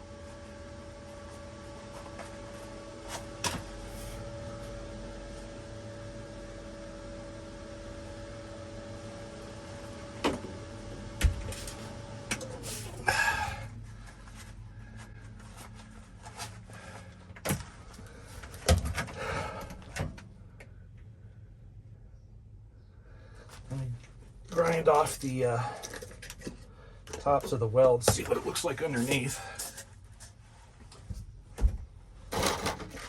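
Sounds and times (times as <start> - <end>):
machine hum winding down: 0.0 - 26.1
tools and metal clattering: 32.3 - 33.0.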